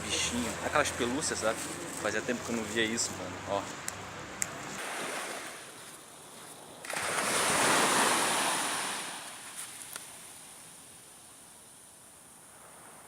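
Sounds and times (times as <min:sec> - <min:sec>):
waves breaking on beach: 0:04.8 - 0:11.5.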